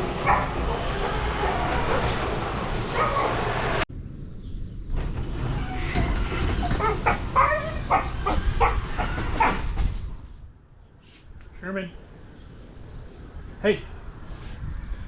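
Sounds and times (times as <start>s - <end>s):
dog barking: 0.2s - 1.1s, 2.9s - 3.6s.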